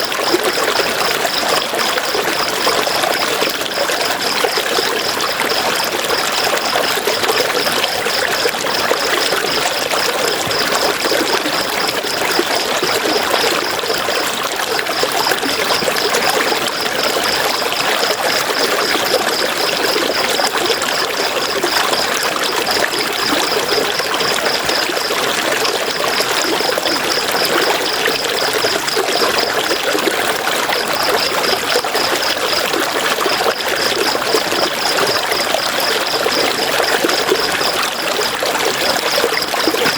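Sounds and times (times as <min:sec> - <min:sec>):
river water flowing: 0:39.0 - 0:39.9.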